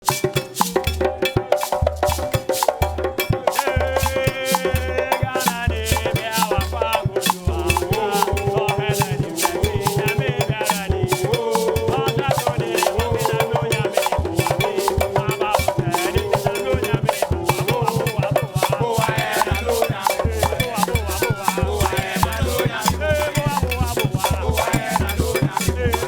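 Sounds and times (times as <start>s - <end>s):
fast shaker percussion: 0.0s - 26.0s
upbeat band music: 14.6s - 25.9s.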